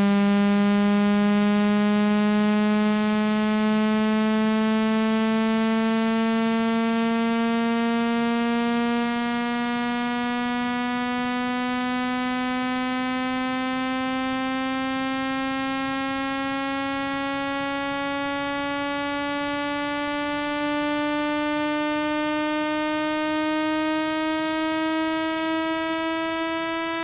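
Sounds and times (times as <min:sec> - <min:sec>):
buzzy electronic tone rising: 0:17.7 - 0:27.0.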